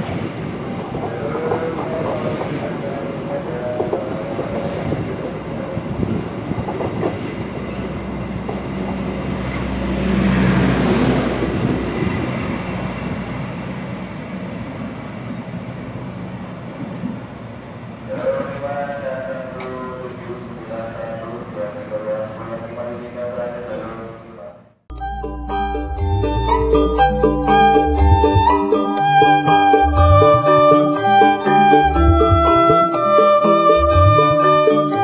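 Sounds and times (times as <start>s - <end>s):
generator engine hum: 25.0s - 34.7s.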